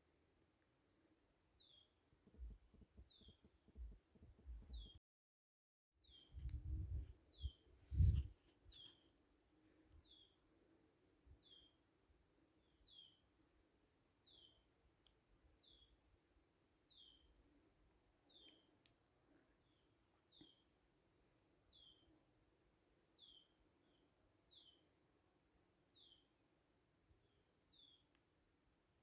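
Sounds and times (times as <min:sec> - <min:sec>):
faint outdoor background: 0:00.0 - 0:05.0, 0:06.0 - 0:29.0
dull low thumps: 0:06.4 - 0:08.3.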